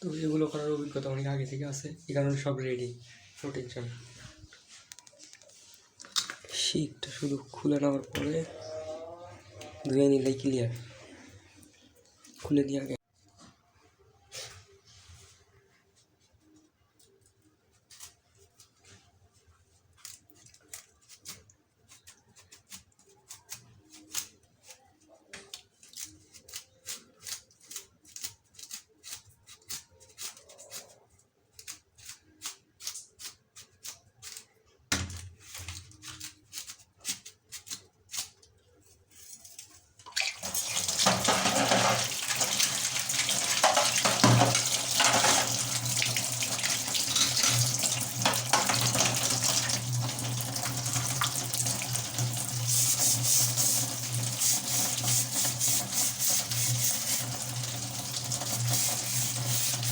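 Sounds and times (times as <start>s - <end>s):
tap water running into sink: 40.1s - 59.9s.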